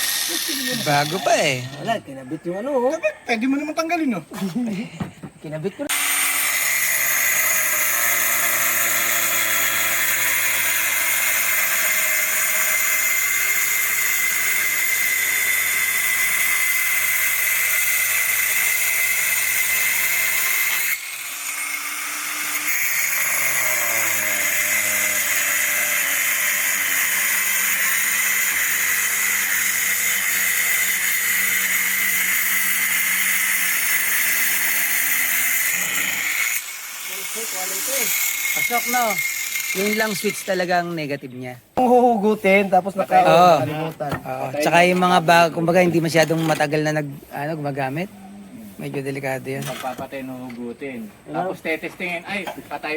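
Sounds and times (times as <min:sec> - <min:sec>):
angle grinder motor whine: 0:00.0 - 0:01.9, 0:05.9 - 0:40.7.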